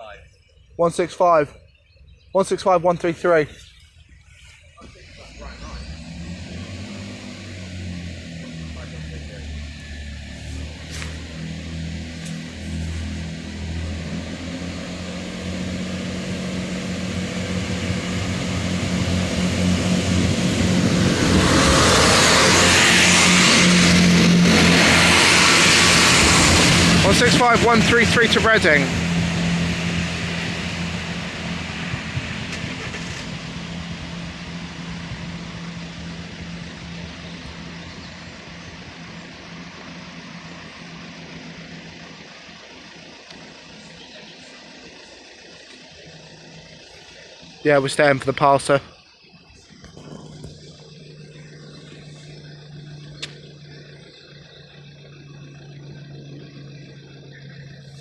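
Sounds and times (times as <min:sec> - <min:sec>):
diesel train engine: 0:00.0 - 0:58.0
rail noise: 0:05.2 - 0:43.7.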